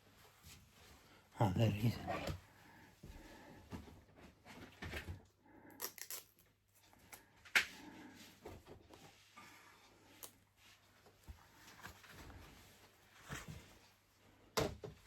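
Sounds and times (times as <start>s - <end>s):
plastic handling rustles and knocks: 14.6s - 15.0s.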